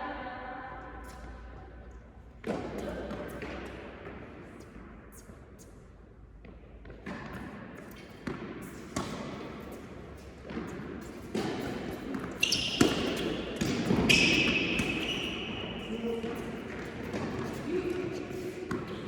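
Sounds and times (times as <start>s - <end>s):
tennis balls struck and bouncing: 2.4s - 4.9s, 6.4s - 19.0s.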